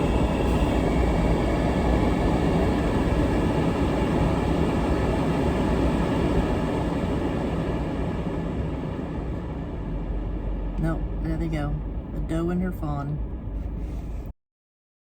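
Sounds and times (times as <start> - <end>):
vehicle engine and tyres rumbling: 0.0 - 14.3.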